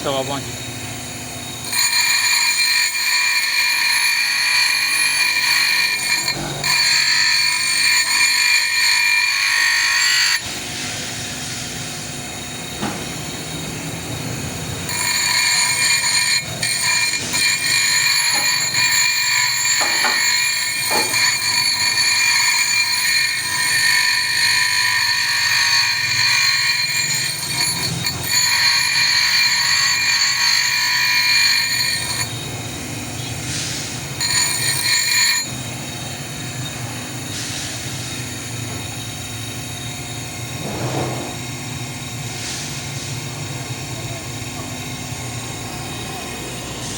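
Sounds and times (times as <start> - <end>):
power tool whining: 0.0 - 46.9.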